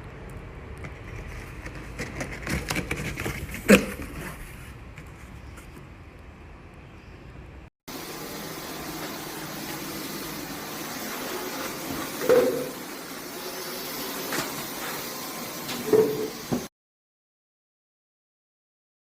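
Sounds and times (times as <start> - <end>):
cordless vacuum running: 7.9 - 16.7.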